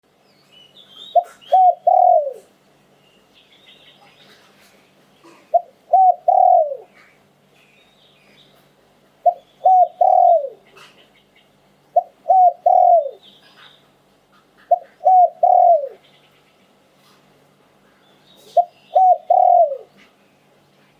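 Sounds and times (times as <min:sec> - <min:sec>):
small birds chirping: 0:00.1 - 0:20.6
dove cooing: 0:01.0 - 0:02.6, 0:05.2 - 0:07.2, 0:09.2 - 0:11.0, 0:11.9 - 0:13.7, 0:14.6 - 0:16.0, 0:18.4 - 0:20.1.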